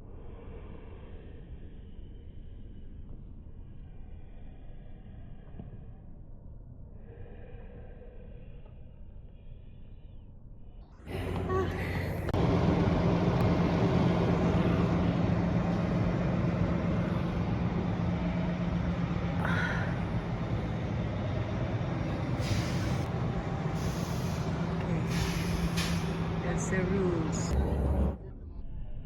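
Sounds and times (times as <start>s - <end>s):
road noise: 11.1s - 28.2s
large vehicle engine humming: 11.1s - 28.3s
short hisses: 23.8s - 26.4s.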